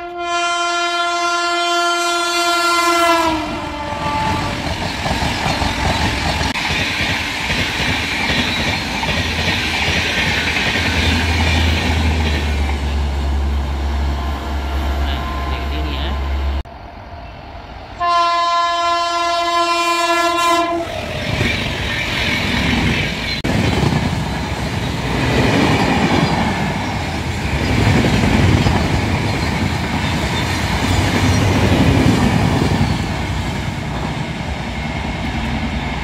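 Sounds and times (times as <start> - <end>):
locomotive horn: 0.0 - 4.7, 13.9 - 16.6, 18.0 - 21.0
passenger train passing: 0.0 - 36.0.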